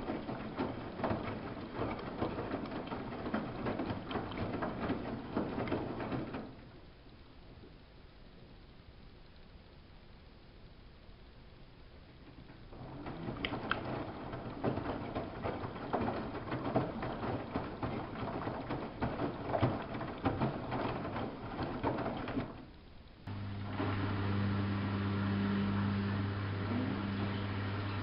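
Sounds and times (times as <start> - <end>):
water splashing in washing machine: 0.0 - 6.7, 12.7 - 28.0
low electric hum: 0.0 - 28.0.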